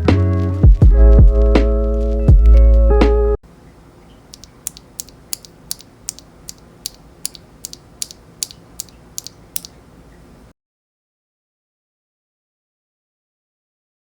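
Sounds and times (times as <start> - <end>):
mechanical keyboard keys clicking: 4.3 - 9.8.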